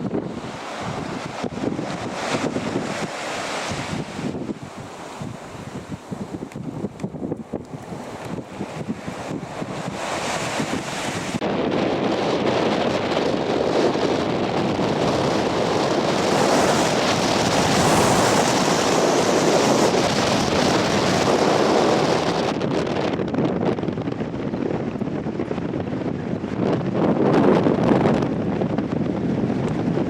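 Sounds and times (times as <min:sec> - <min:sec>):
wind blowing across microphone: 0:00.0 - 0:30.0.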